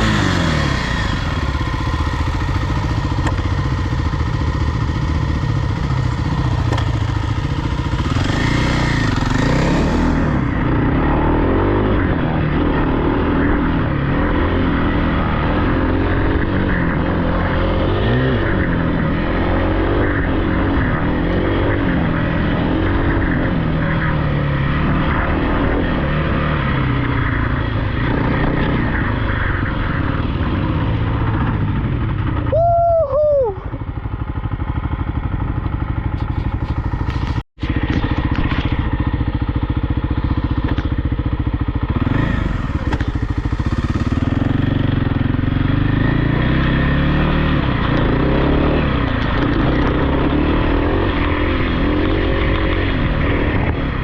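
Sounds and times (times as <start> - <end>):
dirt bike engine revving: 0.0 - 32.4, 36.1 - 54.0.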